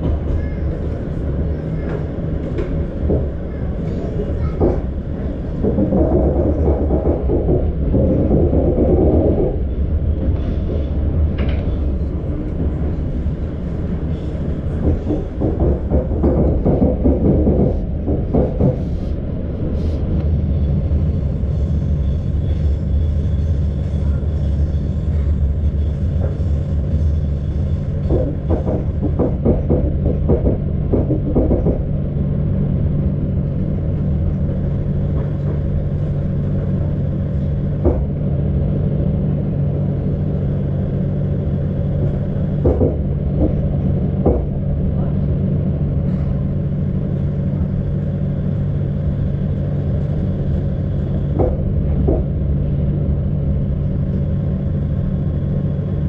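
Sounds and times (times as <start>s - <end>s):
train low rumble: 0.0s - 56.0s
wheel clicks over rail joints: 14.1s - 19.1s, 27.9s - 32.0s.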